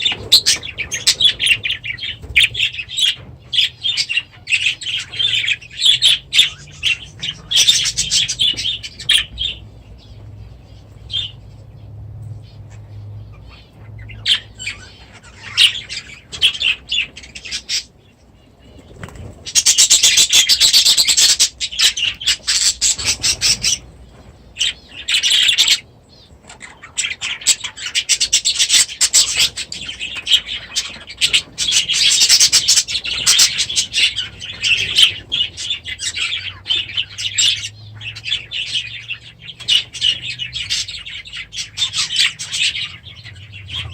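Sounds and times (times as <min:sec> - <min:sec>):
small birds chirping and chattering: 0:00.0 - 0:43.9
wings flapping: 0:18.7 - 0:19.8.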